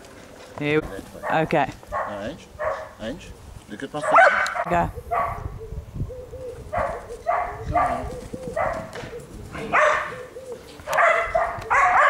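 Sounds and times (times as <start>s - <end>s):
dog barking: 1.2s - 3.0s, 4.0s - 5.4s, 6.7s - 8.9s, 9.6s - 12.0s.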